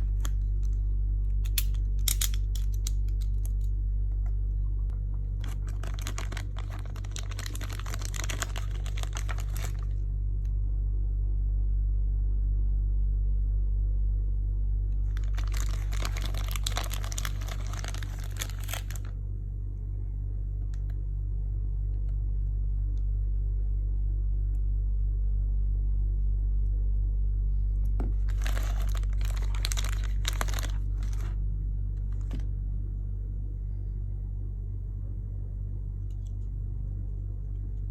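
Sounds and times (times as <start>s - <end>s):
plastic packaging crinkling: 0.0s - 0.8s, 5.3s - 10.0s, 15.1s - 19.1s, 28.2s - 31.4s
steady low hum: 0.0s - 37.9s.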